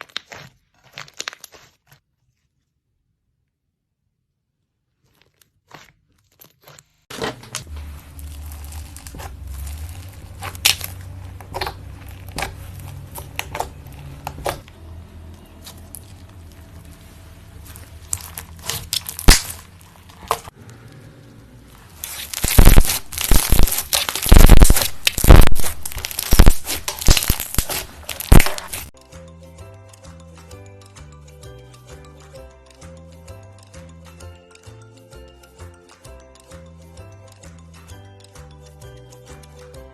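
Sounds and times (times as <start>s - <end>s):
slime crackling and popping: 0.0s - 2.0s, 8.0s - 14.7s, 15.6s - 20.6s, 21.9s - 29.0s.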